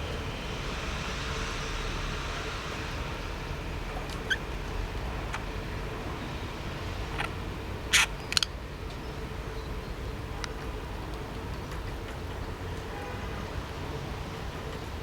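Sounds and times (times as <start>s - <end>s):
bird knocking toy clacks: 7.9s - 8.5s.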